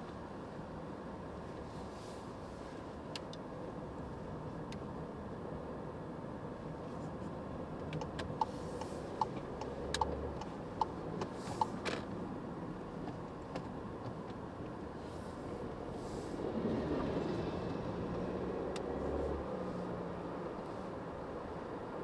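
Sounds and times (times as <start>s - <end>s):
car road and engine noise: 0.0s - 22.0s
turn signal ticking: 7.7s - 15.0s.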